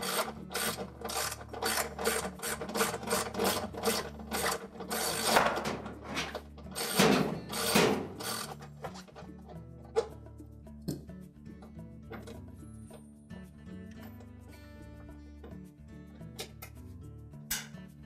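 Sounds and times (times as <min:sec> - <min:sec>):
ratchet wrench clicking: 0:00.0 - 0:05.4, 0:06.7 - 0:08.7.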